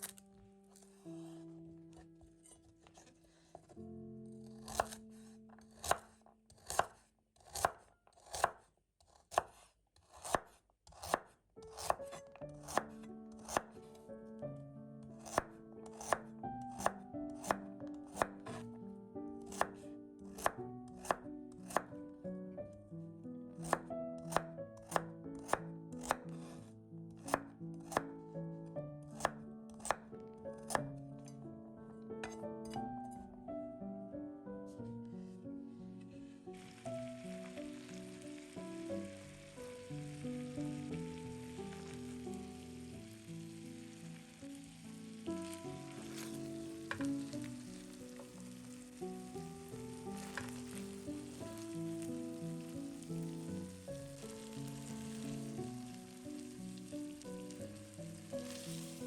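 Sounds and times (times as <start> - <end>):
knife chopping on cutting board: 4.5 - 13.7, 15.2 - 18.7, 19.5 - 22.0, 23.6 - 26.6, 27.2 - 28.1, 29.2 - 30.1, 32.2 - 32.8, 46.0 - 47.2, 50.2 - 50.7
background music with held notes: 27.3 - 59.0.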